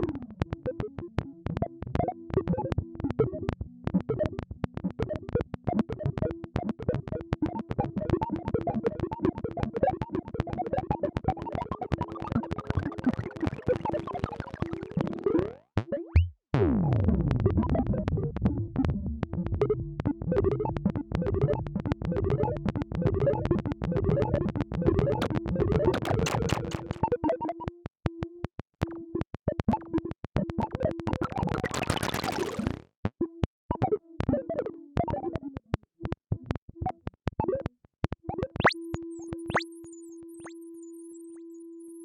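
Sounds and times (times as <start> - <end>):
stuttering clicks and warbling bleeps: 0.5 - 16.4, 19.6 - 40.6.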